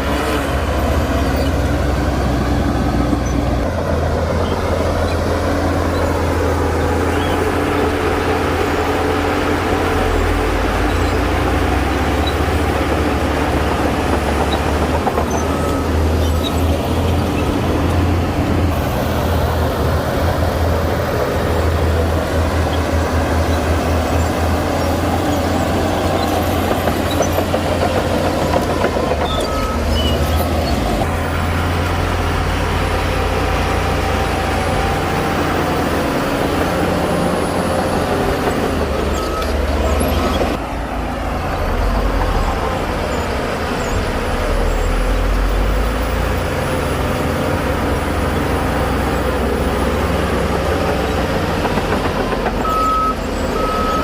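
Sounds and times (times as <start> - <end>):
diesel machinery engine rumble: 0.0 - 54.0
reversing alarm beeps: 39.0 - 40.5, 52.6 - 54.0.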